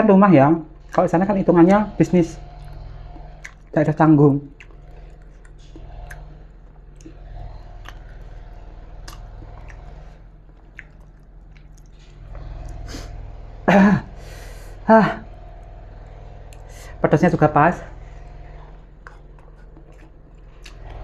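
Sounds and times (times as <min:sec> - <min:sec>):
low steady hum: 0:00.0 - 0:21.0
person chewing food: 0:00.7 - 0:17.0, 0:17.9 - 0:21.0
wet mouth clicks: 0:02.5 - 0:13.2, 0:19.0 - 0:21.0.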